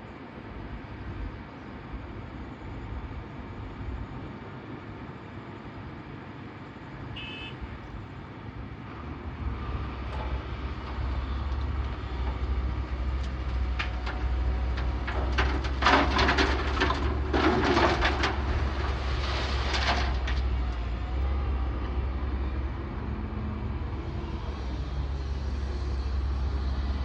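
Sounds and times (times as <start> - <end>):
diesel machinery humming: 2.1 - 27.0
stones clattering and scraping: 13.3 - 20.6.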